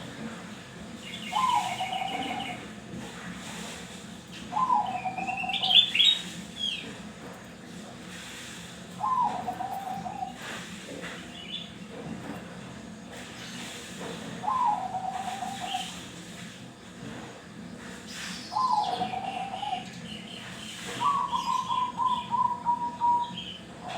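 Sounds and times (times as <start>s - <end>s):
dove cooing: 1.2s - 2.6s, 4.5s - 6.2s, 9.0s - 10.6s, 14.4s - 16.0s, 18.6s - 20.0s, 21.0s - 23.9s.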